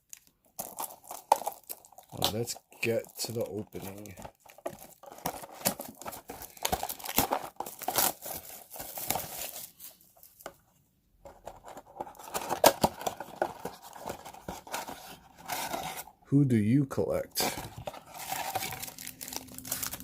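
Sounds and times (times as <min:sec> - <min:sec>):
packaging crinkling and tearing: 0:00.0 - 0:10.4, 0:11.4 - 0:16.0, 0:17.4 - 0:20.0.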